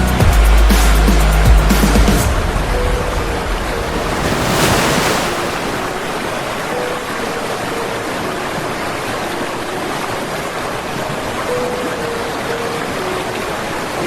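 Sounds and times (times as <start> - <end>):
water rushing: 3.8 - 8.1.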